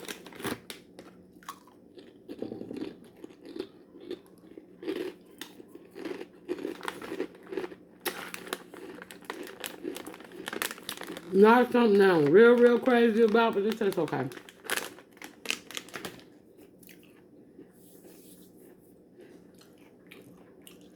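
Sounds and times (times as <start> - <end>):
person chewing crunchy chips: 0.0 - 20.9.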